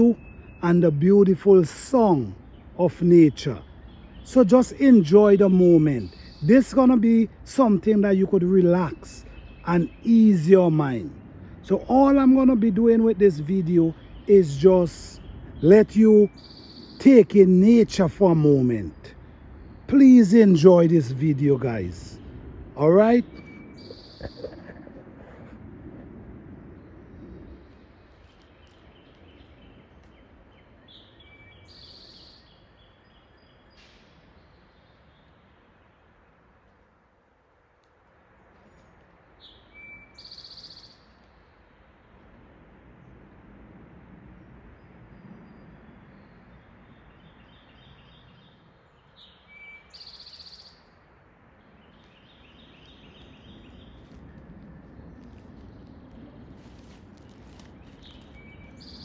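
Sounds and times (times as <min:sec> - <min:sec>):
high bird trill: 0:00.0 - 0:24.9, 0:52.3 - 0:59.0
birds chirping and singing: 0:00.0 - 0:25.1, 0:51.7 - 0:59.0
low outdoor rumble: 0:00.0 - 0:31.3, 0:41.0 - 0:49.1, 0:50.8 - 0:59.0.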